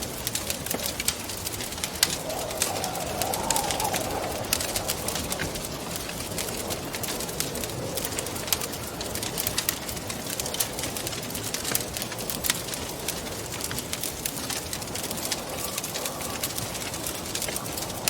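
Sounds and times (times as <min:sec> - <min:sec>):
wood fire crackling and popping: 0:00.0 - 0:18.0
wind rushing: 0:01.7 - 0:07.8.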